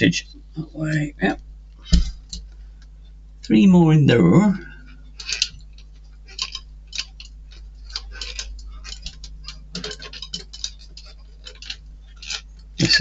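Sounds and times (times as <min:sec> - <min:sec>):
faint steady hum: 0:00.0 - 0:13.0
small metal parts clicking: 0:05.2 - 0:13.0.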